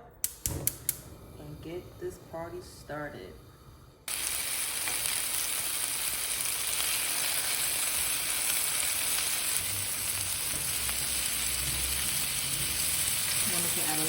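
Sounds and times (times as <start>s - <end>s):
chicken sizzling in oil: 4.1s - 14.0s.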